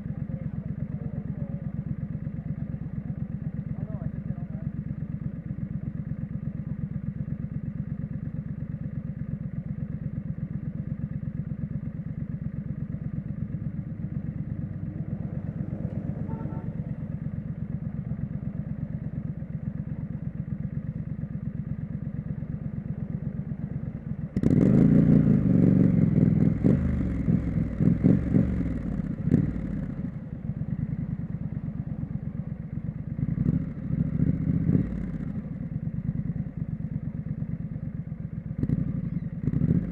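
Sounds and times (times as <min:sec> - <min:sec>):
motorcycle engine revving: 0:11.4 - 0:39.9.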